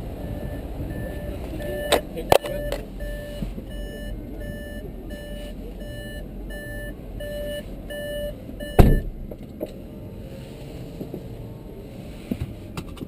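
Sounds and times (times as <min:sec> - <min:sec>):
car warning chime beeping: 0:00.0 - 0:09.2
low rumble: 0:00.0 - 0:13.0
loud heavy thump: 0:08.8 - 0:09.4.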